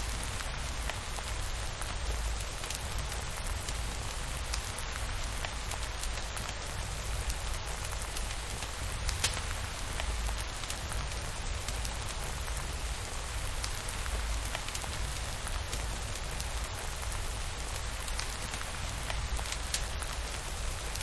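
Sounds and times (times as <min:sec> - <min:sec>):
rain with sharp drop ticks: 0:00.0 - 0:21.0.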